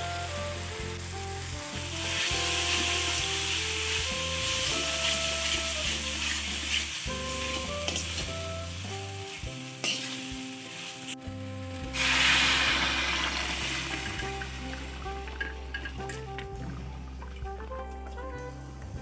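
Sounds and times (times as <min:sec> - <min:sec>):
paste sizzling in a pan: 0:00.0 - 0:17.2
liquid bubbling in hot pan: 0:00.1 - 0:17.6
wooden spatula stirring: 0:02.2 - 0:08.5.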